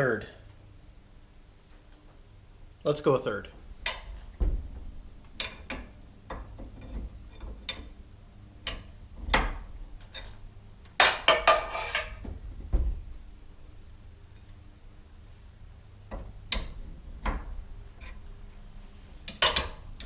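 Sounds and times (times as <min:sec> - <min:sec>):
steel rods clinking on metal: 0:19.3 - 0:20.0.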